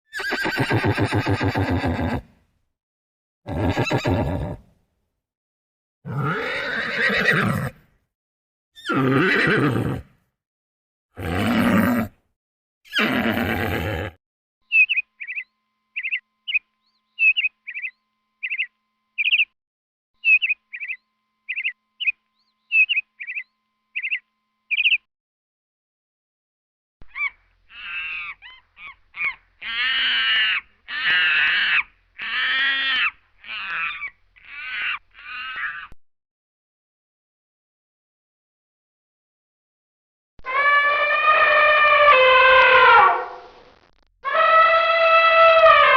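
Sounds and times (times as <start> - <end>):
bird chirping: 14.7 - 19.6, 20.2 - 25.1
crow-like caws: 27.1 - 36.0.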